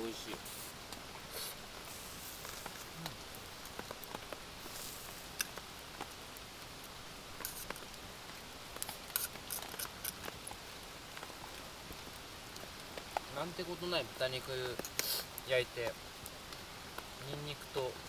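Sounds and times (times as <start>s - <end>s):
rain patter: 0.0s - 18.0s
utensils on dish: 9.1s - 10.3s.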